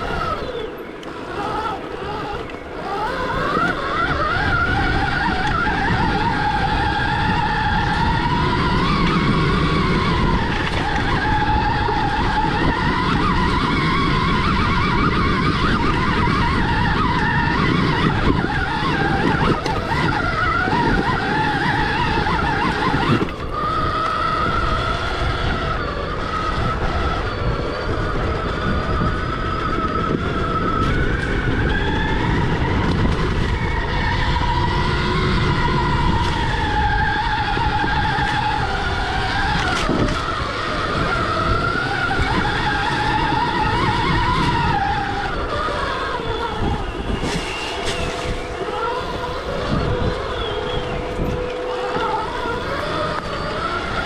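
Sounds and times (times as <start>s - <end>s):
electric dirt bike motor whining: 0.0s - 54.0s.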